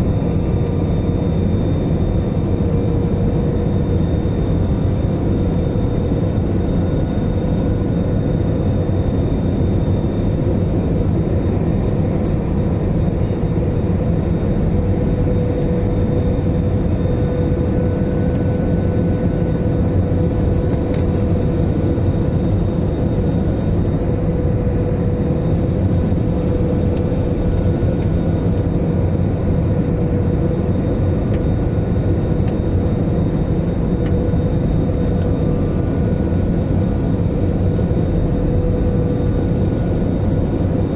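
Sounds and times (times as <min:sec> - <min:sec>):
jet engine and airflow rumble: 0:00.0 - 0:40.9
steady mid-pitched hum: 0:00.0 - 0:40.9.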